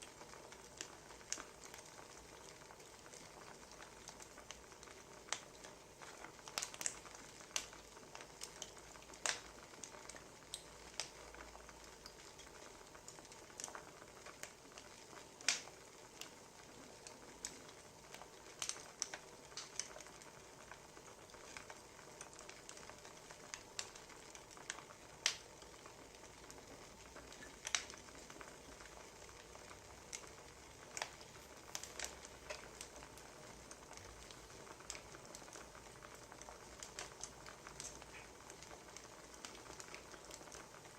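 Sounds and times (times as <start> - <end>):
faint steady hiss: 0.0 - 40.9
firewood logs popping and snapping: 15.4 - 15.7.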